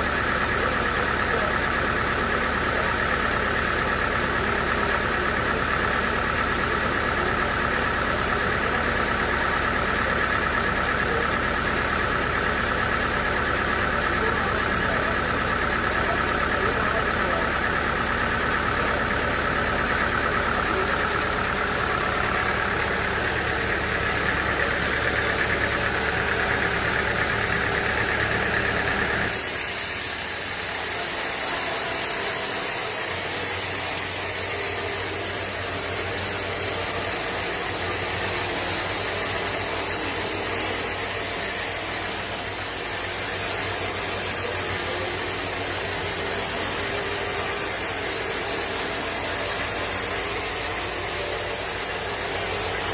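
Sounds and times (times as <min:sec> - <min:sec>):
sawmill machinery running: 0:00.0 - 0:52.9.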